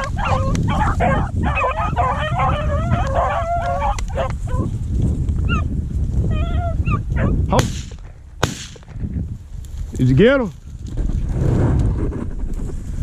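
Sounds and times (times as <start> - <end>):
dogs baying and yelping: 0.0 - 4.7, 5.4 - 5.7, 6.3 - 7.6.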